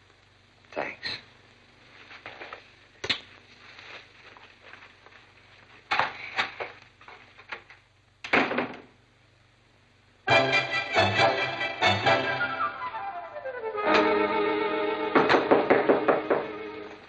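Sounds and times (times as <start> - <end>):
sharp knocks and clatters: 15.2 - 16.6.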